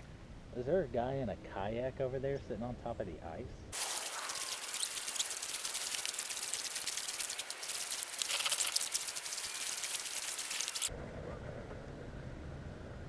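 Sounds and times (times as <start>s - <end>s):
slushy ice crackling against hull: 3.8s - 10.9s.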